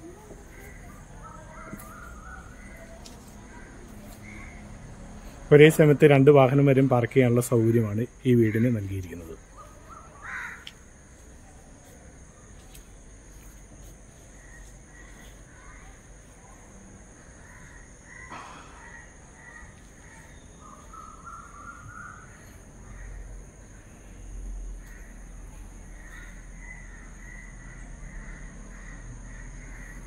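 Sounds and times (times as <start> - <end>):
faint bird calls: 0.0 - 5.4, 9.4 - 10.8, 17.3 - 30.0.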